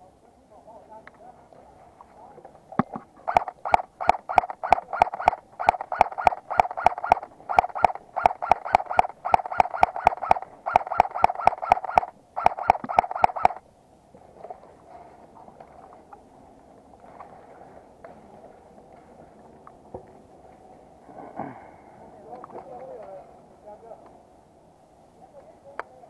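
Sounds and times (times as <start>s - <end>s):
airsoft gun shots: 3.3s - 13.6s.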